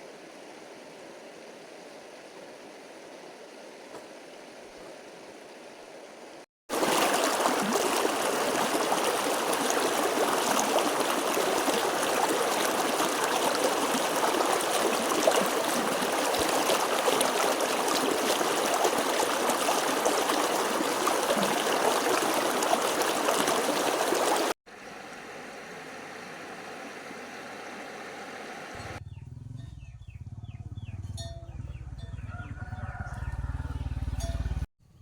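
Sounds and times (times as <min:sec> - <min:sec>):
stream water rushing: 0:00.0 - 0:29.0
high bird-like chirps: 0:29.0 - 0:32.6.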